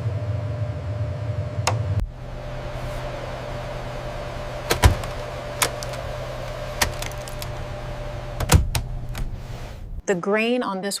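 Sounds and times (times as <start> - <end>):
low hum: 0.0 - 10.0
sharp clicks and knocks: 4.7 - 7.6, 8.4 - 9.3.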